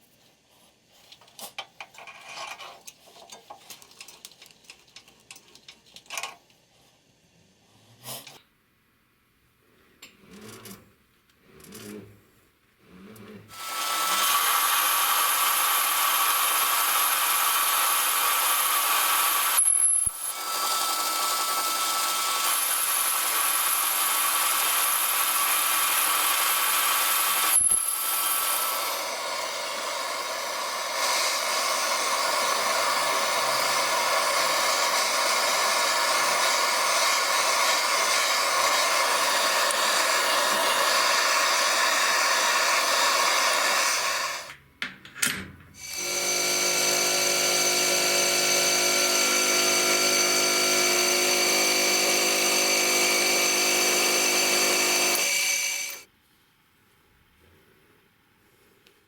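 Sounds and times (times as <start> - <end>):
power tool running under load: 13.5 - 44.5, 45.8 - 56.1.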